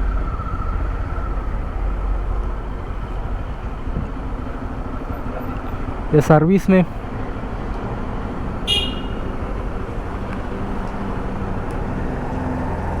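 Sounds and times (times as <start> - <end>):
road traffic noise: 0.0 - 13.0
vehicle engine running: 0.0 - 13.0
car horn toot: 8.6 - 9.4.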